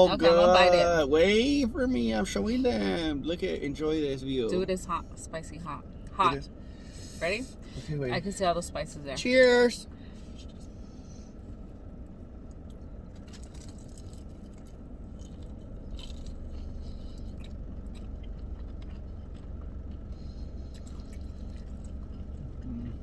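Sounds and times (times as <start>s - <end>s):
low room hum: 0.0s - 23.0s
chewing crispy food: 12.4s - 23.0s.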